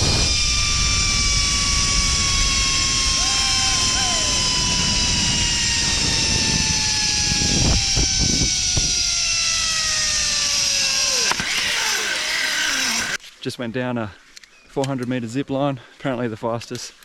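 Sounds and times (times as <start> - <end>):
wind rush on microphone: 0.0 - 11.0
zip-line pulleys whining on cable: 0.0 - 13.2.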